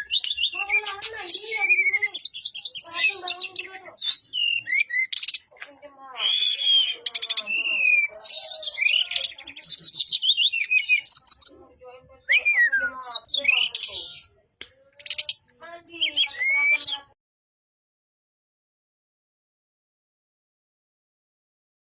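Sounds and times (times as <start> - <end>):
songbird singing: 0.0 - 17.2.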